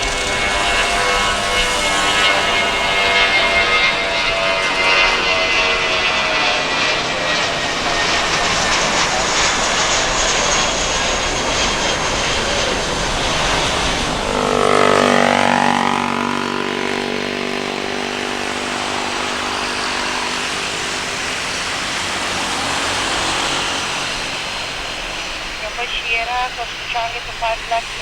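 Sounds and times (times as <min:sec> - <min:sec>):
engine whine gliding down: 0:00.0 - 0:28.0
jet engines roaring: 0:00.0 - 0:28.0.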